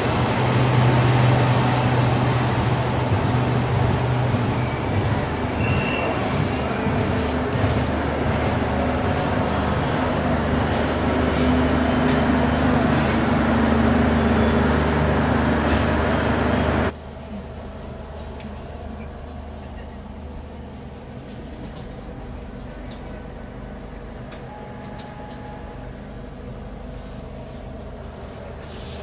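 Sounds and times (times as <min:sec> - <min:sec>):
background noise inside train coach: 0:00.0 - 0:29.0
train coaches rolling rumble: 0:00.0 - 0:29.0.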